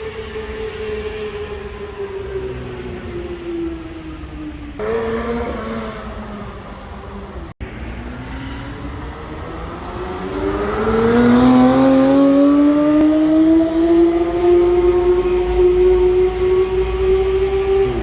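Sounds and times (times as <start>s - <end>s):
car engine revving: 2.3s - 18.0s.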